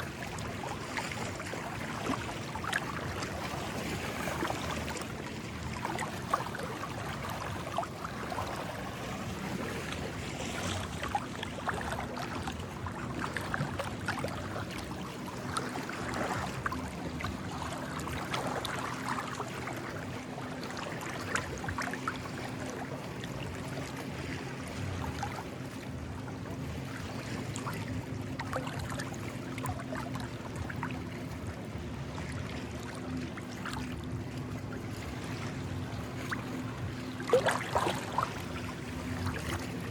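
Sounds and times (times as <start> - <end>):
little splashes: 0.0 - 39.9
small waves lapping on rocks: 32.2 - 39.9.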